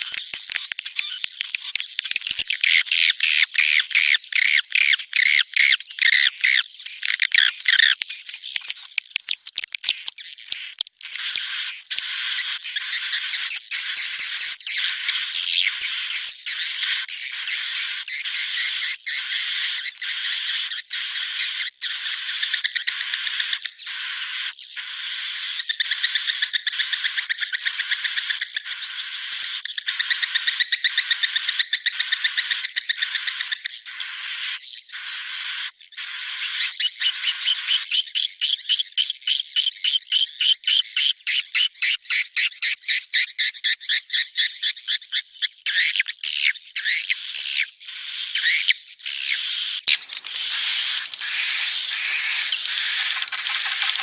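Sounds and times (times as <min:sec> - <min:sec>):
swiftlet calls chirping: 0:46.9 - 0:54.0.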